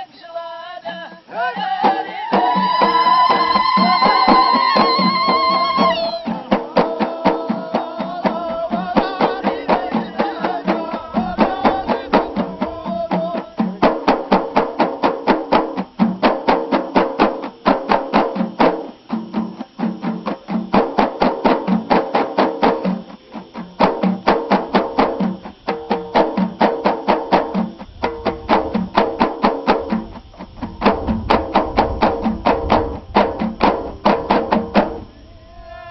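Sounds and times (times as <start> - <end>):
chanted singing: 0.0 - 14.1, 34.9 - 35.9
frame drums beating: 0.9 - 35.2.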